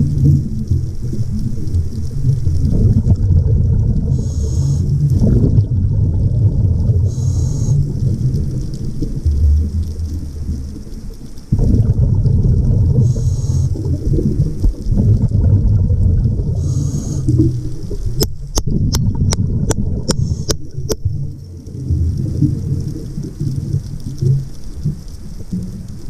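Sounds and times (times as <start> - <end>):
underwater rumble of moving water: 0.0 - 26.0
sharp clicks: 18.2 - 21.1.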